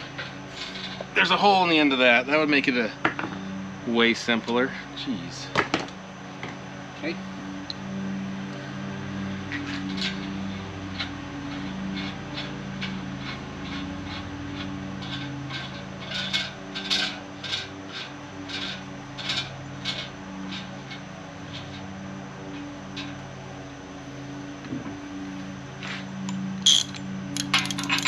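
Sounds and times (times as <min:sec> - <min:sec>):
hands scraping and rubbing parts: 0:00.0 - 0:01.4, 0:09.5 - 0:23.2, 0:25.8 - 0:28.0
steady low hum: 0:00.0 - 0:28.0.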